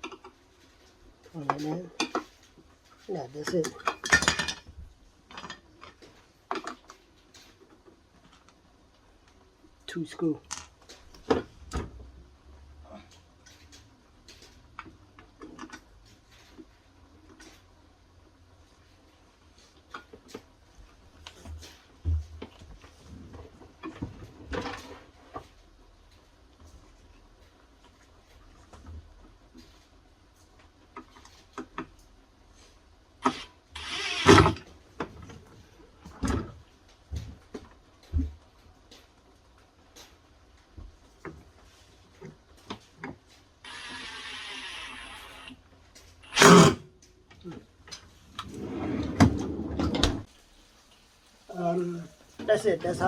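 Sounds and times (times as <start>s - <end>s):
parts and screws clicking: 33.2s - 34.6s, 43.7s - 45.6s
whirring hiss: 33.2s - 34.6s, 43.6s - 45.6s, 46.2s - 46.8s.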